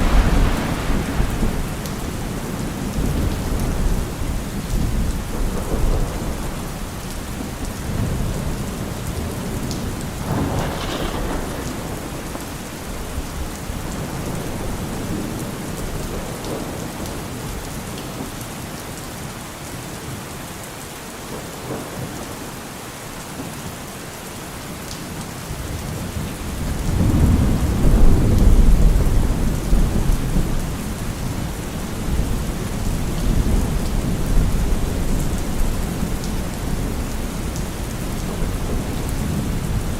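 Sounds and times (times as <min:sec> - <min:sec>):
thunder rumbling: 0:00.0 - 0:07.0, 0:07.9 - 0:17.6, 0:26.4 - 0:39.9
steady rain: 0:00.0 - 0:39.9.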